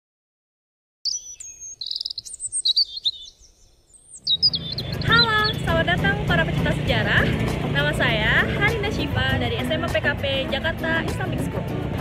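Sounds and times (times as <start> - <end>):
bird trill: 1.0 - 5.9
small birds chirping: 1.0 - 7.7.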